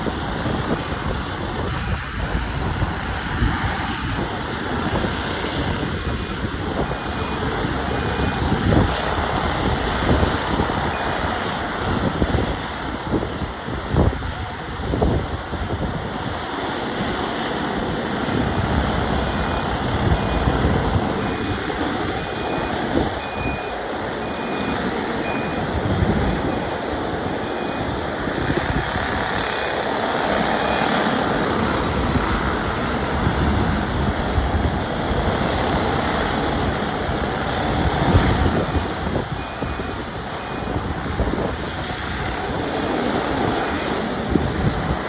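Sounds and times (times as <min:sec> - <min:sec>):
reversing alarm beeping: 0:01.4 - 0:12.2, 0:19.2 - 0:44.0.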